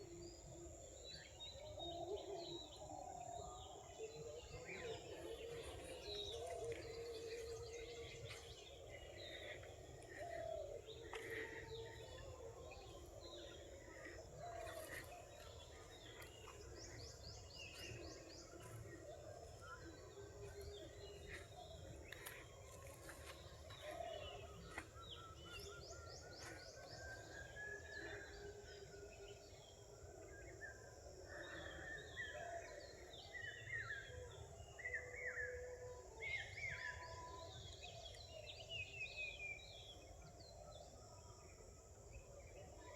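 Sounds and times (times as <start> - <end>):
birds chirping and whistling: 1.1 - 30.6.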